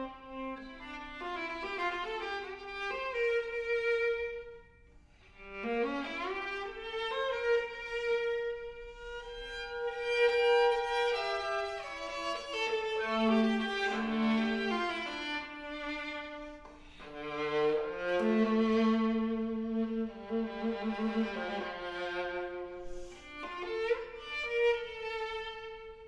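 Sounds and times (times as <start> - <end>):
viola bowed notes: 5.4 - 26.0.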